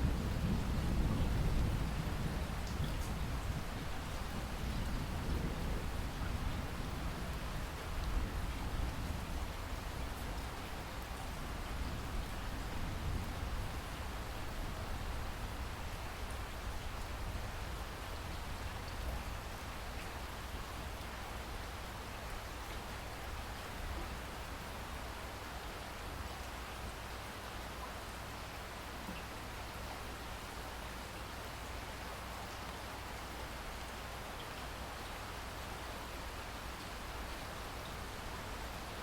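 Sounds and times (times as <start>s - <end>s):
steady rain: 0.0s - 39.0s.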